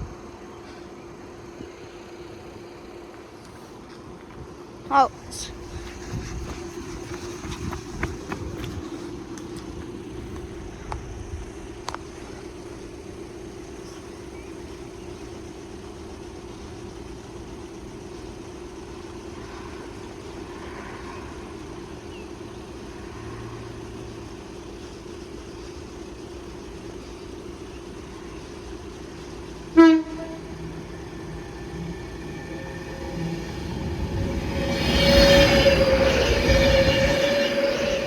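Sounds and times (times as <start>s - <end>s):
steady low hum: 0.0s - 20.7s
train approaching: 0.0s - 38.0s
train horn toot: 29.7s - 30.6s, 34.0s - 38.0s.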